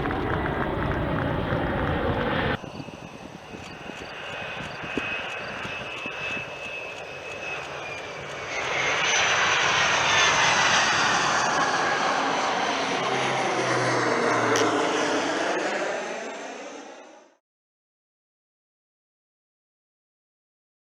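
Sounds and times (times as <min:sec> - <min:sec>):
jet engine whining passing by: 0:00.0 - 0:17.4.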